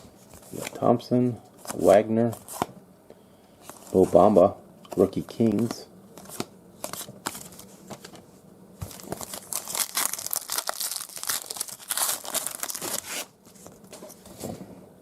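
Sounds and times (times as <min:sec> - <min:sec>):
plastic wrapper tearing and crinkling: 0:08.8 - 0:13.3.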